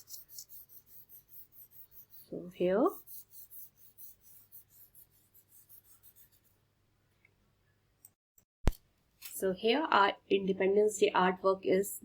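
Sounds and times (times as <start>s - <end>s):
colouring strokes on paper: 0.0s - 6.6s.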